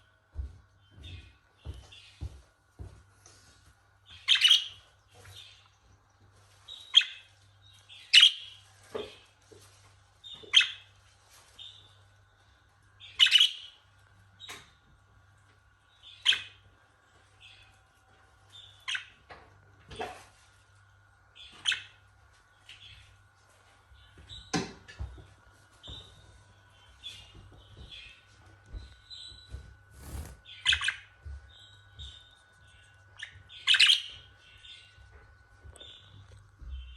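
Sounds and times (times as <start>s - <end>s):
budgerigar chirping: 4.2s - 4.8s, 13.1s - 13.8s, 33.2s - 34.3s.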